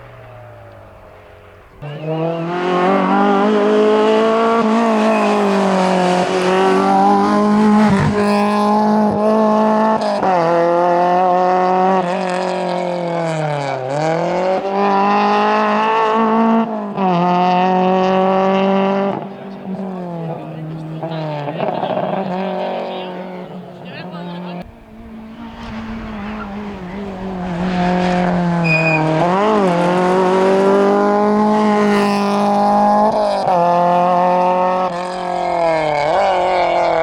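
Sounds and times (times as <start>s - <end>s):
rally car engine at full throttle: 0.0s - 37.0s.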